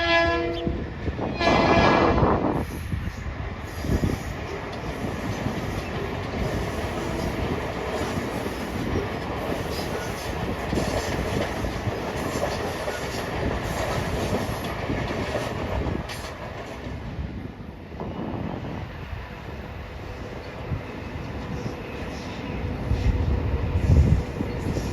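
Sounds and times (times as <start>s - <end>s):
train wheels rumbling: 0.0s - 24.9s
clickety-clack of rail joints: 1.0s - 17.7s.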